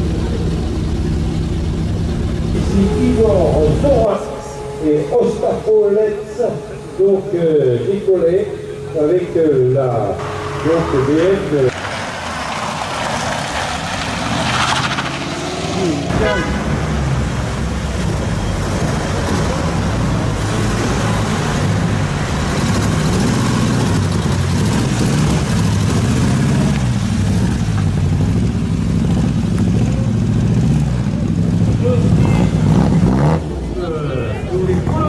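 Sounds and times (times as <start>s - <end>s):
car engines running at low revs: 0.0s - 4.1s, 6.8s - 35.0s
onlookers' voices: 29.6s - 35.0s.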